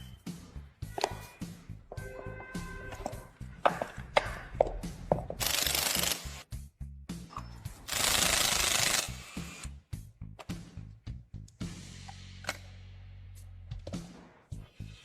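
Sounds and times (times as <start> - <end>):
background music: 0.0 - 15.0
tool clicks and knocks: 2.9 - 5.5.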